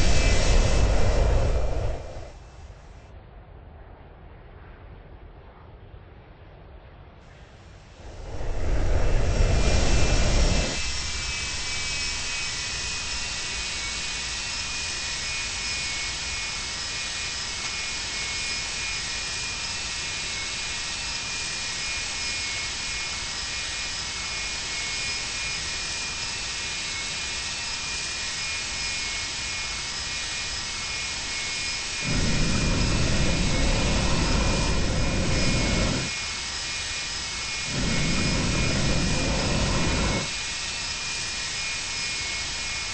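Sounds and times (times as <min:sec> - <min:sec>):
cabin rushing noise: 0:00.0 - 0:02.4, 0:08.0 - 0:13.0
jet engines whining: 0:00.0 - 0:03.0, 0:07.4 - 0:42.9
heavy low rumble: 0:00.0 - 0:06.1, 0:08.0 - 0:13.8, 0:32.0 - 0:36.1, 0:37.7 - 0:40.3.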